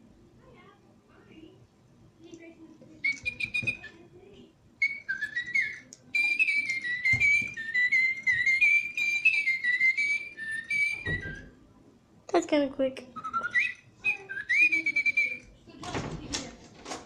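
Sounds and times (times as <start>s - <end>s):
electronic toy bird chirping: 3.0s - 4.0s, 4.8s - 11.5s, 13.2s - 15.5s.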